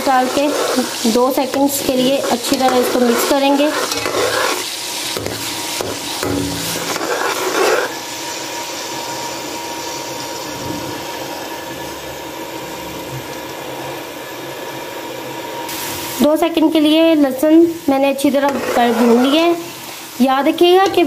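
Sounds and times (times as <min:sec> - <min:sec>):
metal spoon scraping a pan: 0:00.0 - 0:08.0, 0:18.2 - 0:20.0, 0:20.8 - 0:21.0
garlic paste sizzling in oil: 0:00.0 - 0:21.0.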